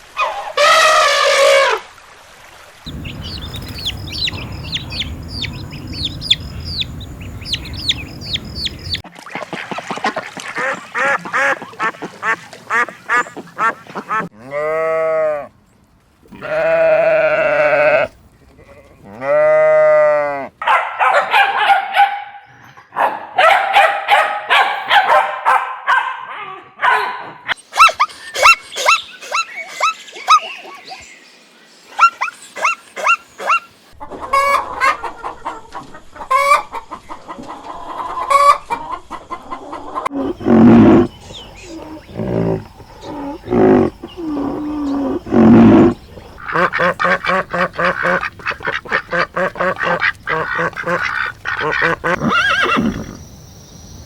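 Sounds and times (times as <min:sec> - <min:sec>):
chickens clucking: 0:02.9 - 0:14.3, 0:32.6 - 0:52.4.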